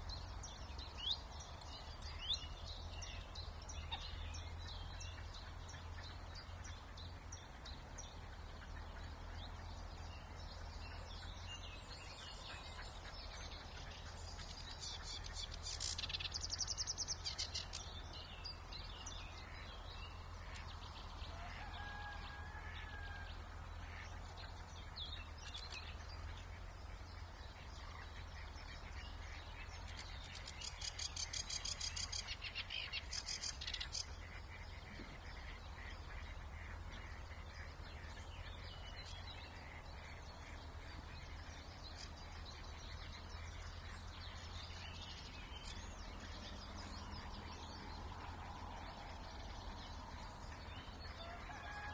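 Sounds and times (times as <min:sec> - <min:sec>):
rapid trilled bird song: 0:00.0 - 0:51.9
songbirds singing: 0:00.0 - 0:51.9.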